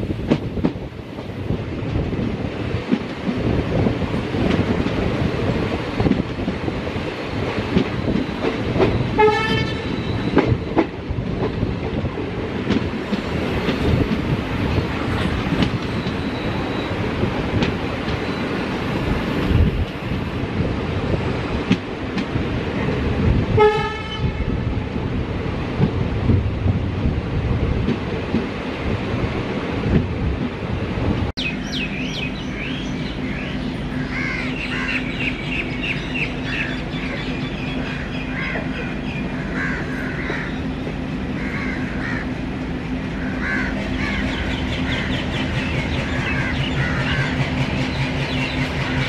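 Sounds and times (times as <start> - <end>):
train wheels clattering: 7.4 - 20.1, 43.4 - 49.0
train horn toot: 9.1 - 10.4, 23.5 - 24.6.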